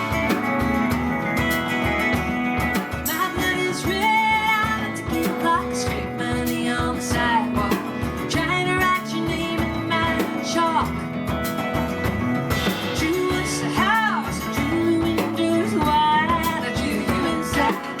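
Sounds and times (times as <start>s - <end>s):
drum beat: 0.0s - 18.0s
folk-rock band playing: 0.0s - 18.0s
guitar: 0.0s - 18.0s.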